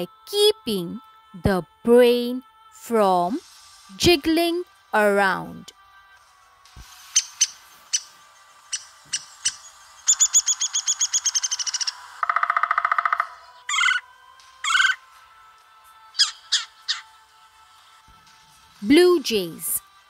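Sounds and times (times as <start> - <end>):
woodpecker calls: 7.1 - 14.0, 14.6 - 15.0, 16.2 - 17.1
woodpecker rattle: 8.7 - 14.0
woodpecker tapping: 8.7 - 14.0.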